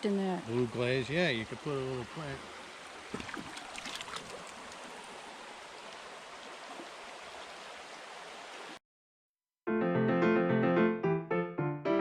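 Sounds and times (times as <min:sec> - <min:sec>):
river water rushing: 0:00.4 - 0:08.8.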